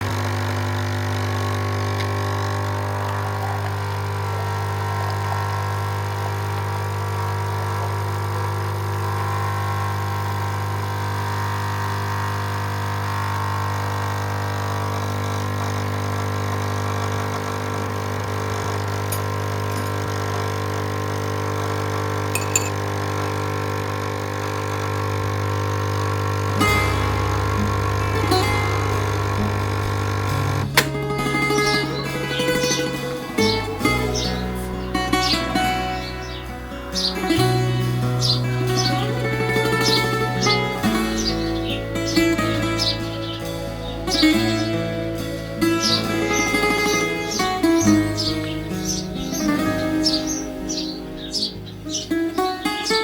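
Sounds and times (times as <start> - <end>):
engine humming: 0.0 - 53.0.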